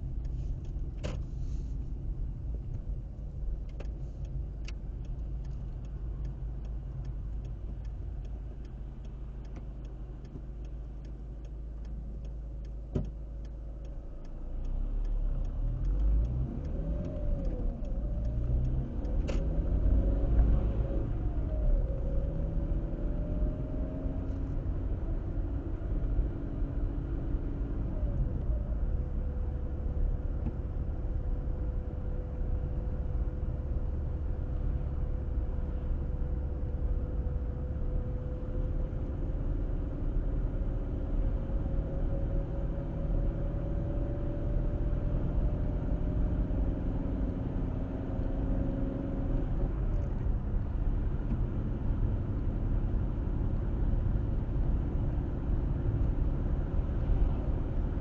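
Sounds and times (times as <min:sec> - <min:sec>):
turn signal ticking: 0:02.3 - 0:24.0
car engine accelerating: 0:03.5 - 0:58.0.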